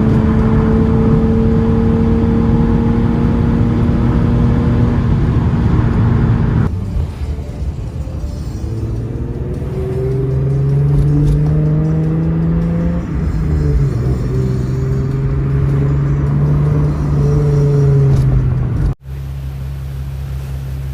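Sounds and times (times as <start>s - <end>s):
car exhaust note: 8.4s - 20.9s.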